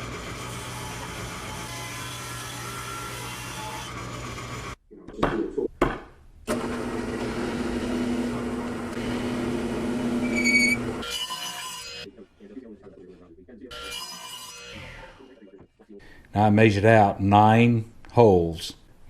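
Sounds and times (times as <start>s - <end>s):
woodshop power tools running: 0.0s - 4.8s, 6.5s - 12.0s
machine humming: 6.5s - 11.0s
high-pitched squeal: 10.2s - 11.0s.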